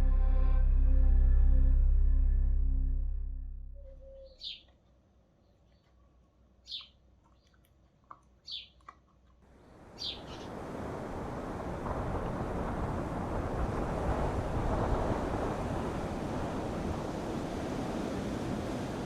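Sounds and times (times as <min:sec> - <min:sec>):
rush of wind and surf: 0:09.8 - 0:19.0.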